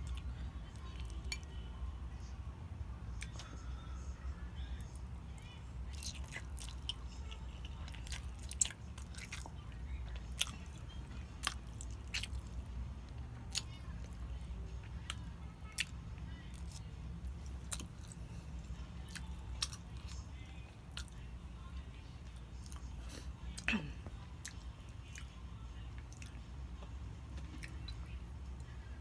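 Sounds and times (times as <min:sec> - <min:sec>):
steady low hum: 0:00.0 - 0:29.0
chewing and biting: 0:04.9 - 0:14.2, 0:14.8 - 0:21.3, 0:22.3 - 0:23.7, 0:24.4 - 0:28.2.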